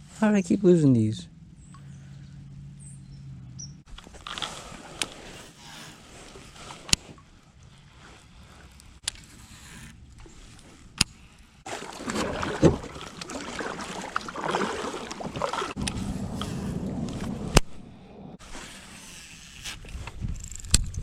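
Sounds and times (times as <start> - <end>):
water splashing around kayak: 3.9 - 17.8.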